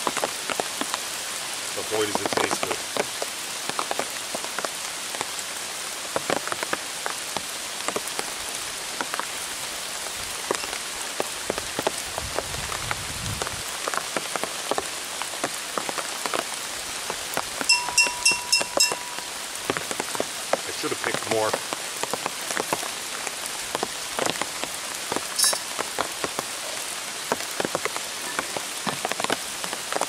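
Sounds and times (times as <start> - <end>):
rain drops ticking: 0.0 - 30.0
short high beeps: 17.7 - 19.3.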